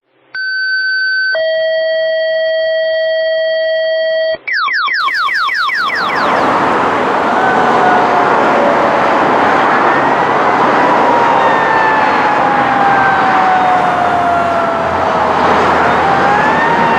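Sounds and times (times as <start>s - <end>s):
two-tone paging alert: 5.0s - 6.2s
electronic siren sweeping upward: 5.0s - 16.9s
siren winding up and down: 5.0s - 16.9s
fire engine rumble: 5.1s - 16.9s.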